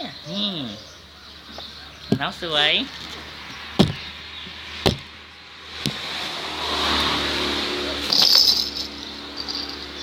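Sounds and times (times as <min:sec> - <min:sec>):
motor vehicle passing by: 0:02.8 - 0:10.0
short knocks: 0:03.8 - 0:04.1, 0:04.8 - 0:05.1.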